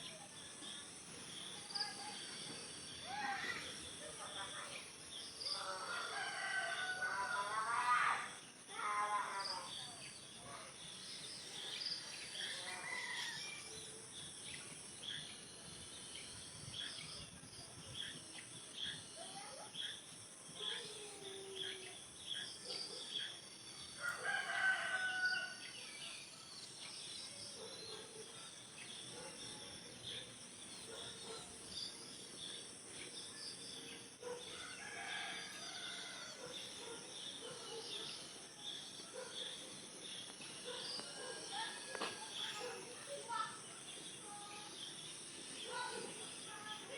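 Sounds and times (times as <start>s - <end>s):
rooster crowing: 5.8s - 7.7s, 24.0s - 25.6s.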